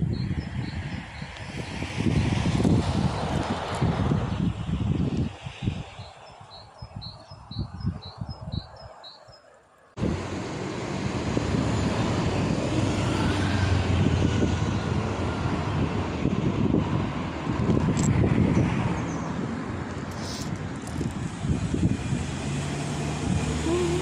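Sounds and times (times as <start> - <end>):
outdoor rustling: 1.0 - 13.2, 17.8 - 21.8
loud steady rushing noise: 10.0 - 17.6.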